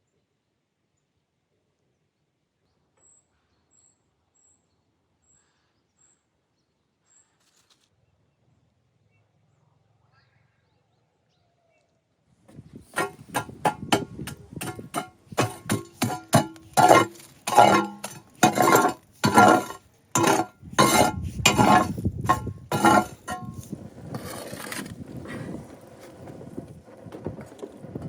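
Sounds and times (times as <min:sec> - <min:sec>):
sharp clinks and knocks: 0:12.9 - 0:24.3.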